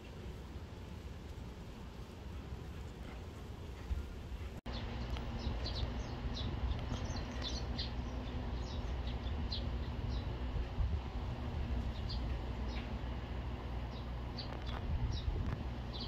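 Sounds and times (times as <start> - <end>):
low outdoor rumble: 0.0 - 16.0
small birds chirping: 4.7 - 10.8, 11.4 - 16.0.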